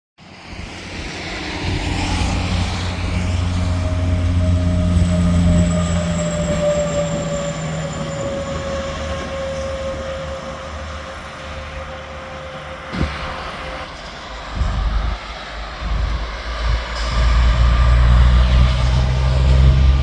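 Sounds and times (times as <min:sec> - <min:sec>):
steady whine dropping in pitch: 0:00.2 - 0:20.0
truck diesel engine droning: 0:00.3 - 0:20.0.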